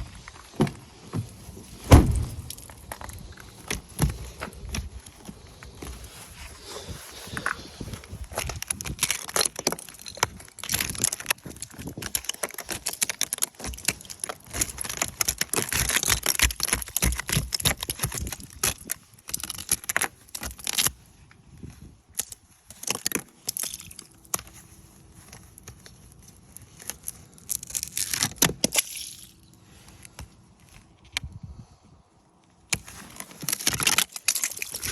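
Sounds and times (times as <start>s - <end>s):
ice crackling and cracking: 0.0s - 21.0s, 21.6s - 30.2s, 32.7s - 34.9s.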